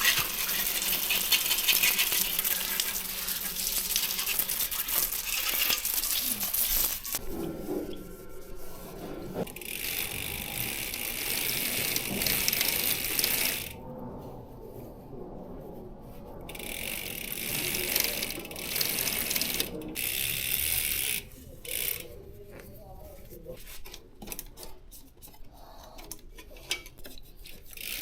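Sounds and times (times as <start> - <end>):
bicycle freewheel ratcheting: 0.0 - 7.2, 9.4 - 13.8, 16.5 - 22.3, 25.9 - 28.0.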